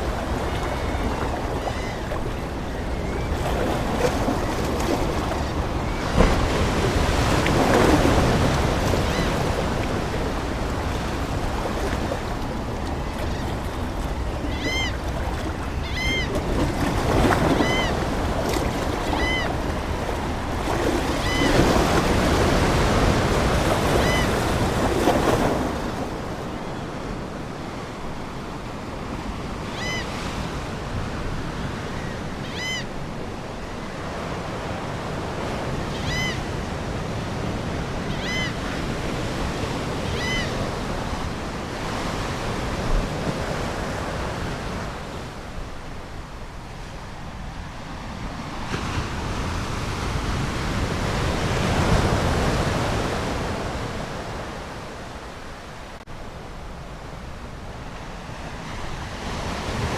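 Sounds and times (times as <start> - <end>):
seagull calling: 0.0 - 24.6, 38.1 - 38.7, 40.1 - 40.7
ocean waves breaking: 0.0 - 59.9.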